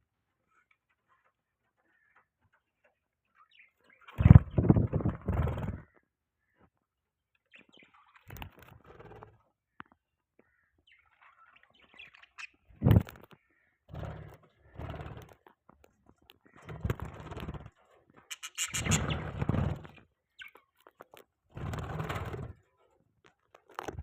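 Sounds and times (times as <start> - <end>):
budgies chirping and chattering: 10.8 - 15.4, 16.4 - 21.1.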